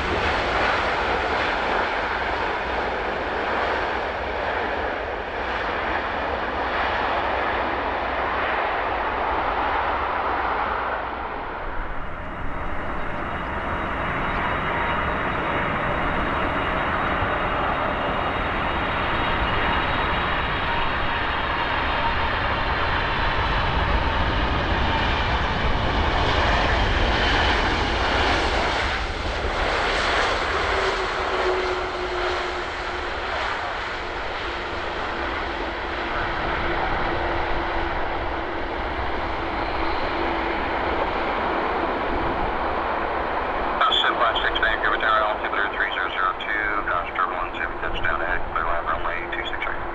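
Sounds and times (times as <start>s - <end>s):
jet airliner passing overhead: 0.0s - 49.9s.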